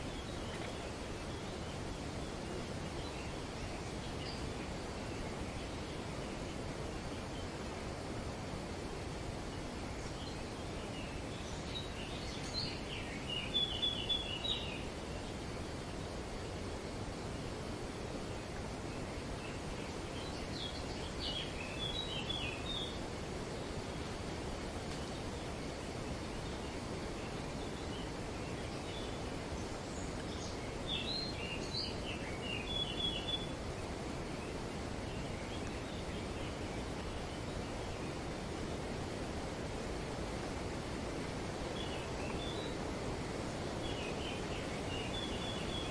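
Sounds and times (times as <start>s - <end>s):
wind through tree foliage: 0.0s - 45.9s
birds chirping: 9.1s - 17.5s, 18.8s - 39.0s, 41.3s - 45.9s.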